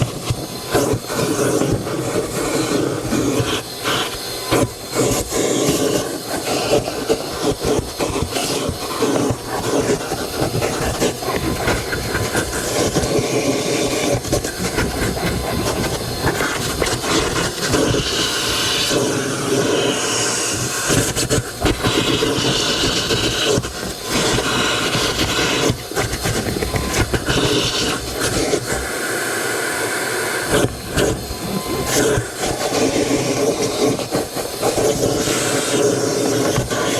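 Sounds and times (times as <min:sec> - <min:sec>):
hiss: 0:00.0 - 0:36.9
rubbing and scrubbing on car: 0:04.7 - 0:19.7.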